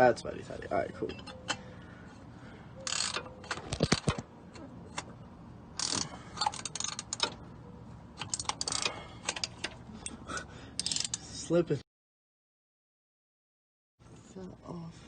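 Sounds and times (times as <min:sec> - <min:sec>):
hand tools clicking and rattling: 0:02.8 - 0:05.2, 0:05.8 - 0:07.5, 0:08.1 - 0:11.3.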